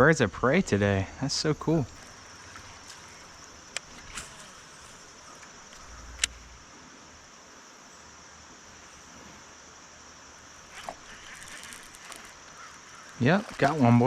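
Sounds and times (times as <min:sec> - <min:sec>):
sharp click: 0:05.4 - 0:06.6
high-pitched insect drone: 0:10.3 - 0:14.0.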